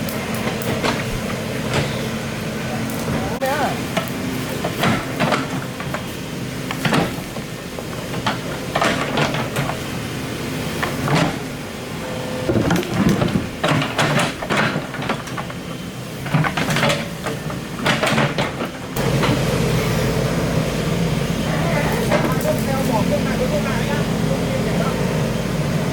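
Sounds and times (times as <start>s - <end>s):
excavator engine running: 0.0s - 25.9s.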